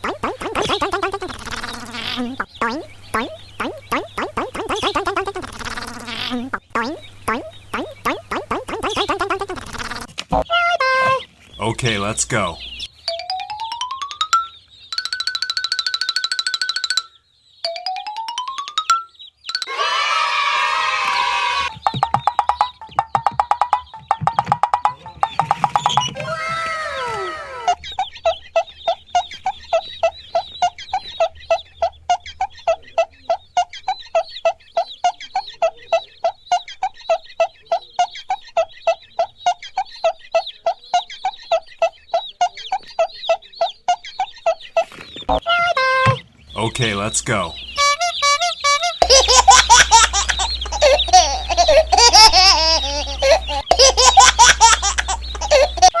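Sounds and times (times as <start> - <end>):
high-pitched giggling and laughter: 0.0 - 11.2, 26.1 - 28.8, 47.8 - 56.0
poultry calling: 0.0 - 17.7, 19.2 - 56.0.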